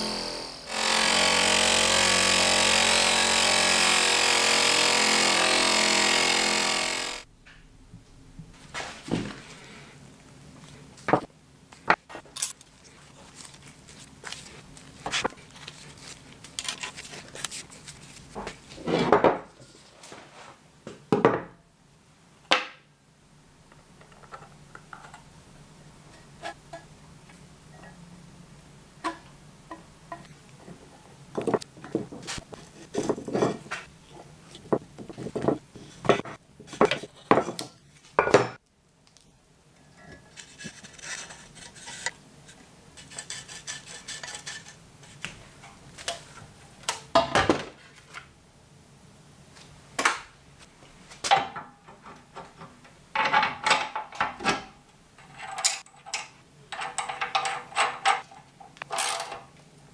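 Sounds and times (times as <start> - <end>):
metal parts scraping: 40.3 - 42.1, 56.8 - 59.5
small metal parts clinking: 58.8 - 59.4.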